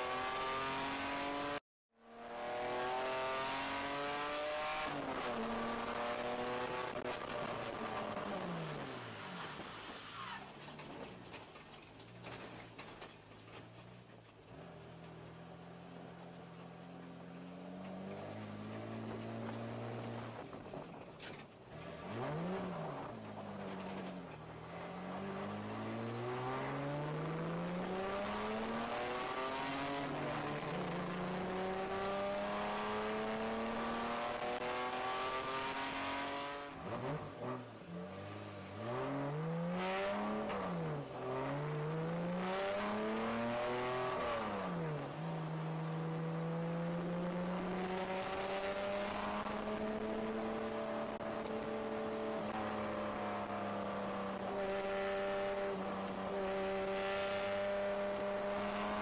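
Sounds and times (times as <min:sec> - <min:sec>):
race car engine revving: 0:00.0 - 0:09.6, 0:21.8 - 0:59.0.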